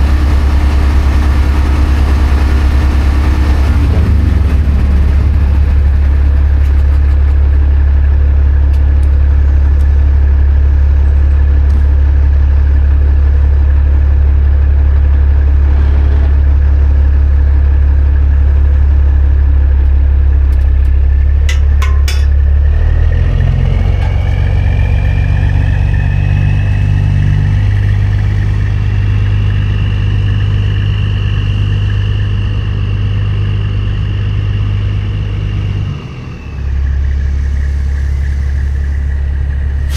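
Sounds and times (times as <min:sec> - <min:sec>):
diesel engine running under load: 0:00.0 - 0:39.9
high whine: 0:15.0 - 0:22.8, 0:23.5 - 0:39.9.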